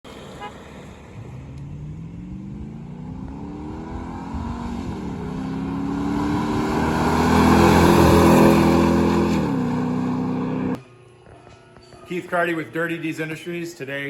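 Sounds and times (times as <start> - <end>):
truck engine accelerating past: 0.1 - 10.8.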